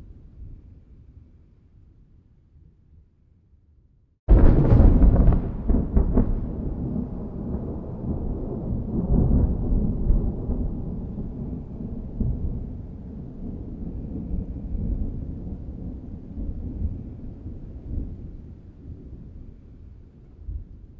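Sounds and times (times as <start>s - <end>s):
sharp thunder crackles: 4.3s - 17.0s
thunder rolling and rumbling: 4.3s - 20.9s.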